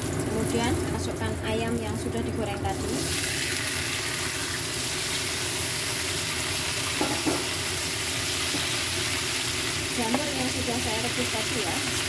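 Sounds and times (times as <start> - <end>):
chicken sizzling in hot oil: 0.0 - 12.0
spatula knocking against pan: 7.0 - 7.5.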